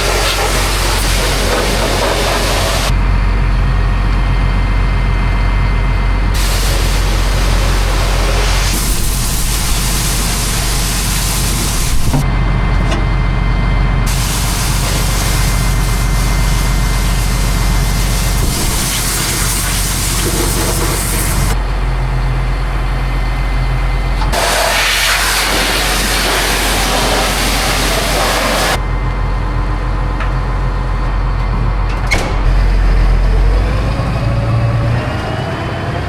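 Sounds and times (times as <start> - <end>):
loud even hiss: 0.0 - 2.9, 6.4 - 12.2, 14.1 - 21.6, 24.3 - 28.8.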